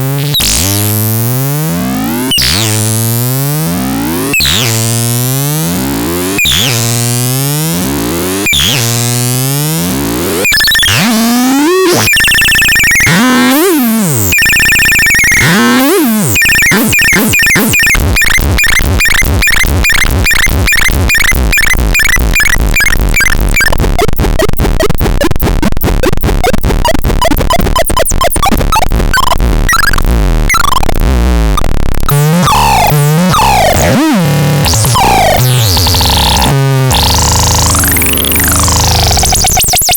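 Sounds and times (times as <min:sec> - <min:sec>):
synthesized chirps and glides: 0:10.2 - 0:39.9.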